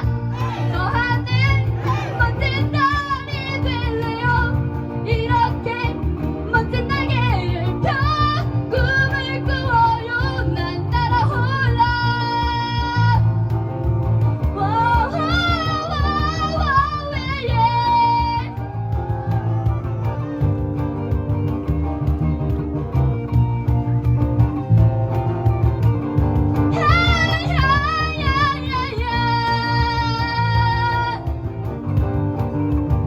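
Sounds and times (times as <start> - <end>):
woman singing lead: 0.0 - 13.6, 14.4 - 20.8, 26.6 - 31.6
acoustic guitar: 0.0 - 33.0
bass guitar: 0.0 - 33.0
cajon: 0.0 - 33.0
electric guitar: 0.0 - 33.0.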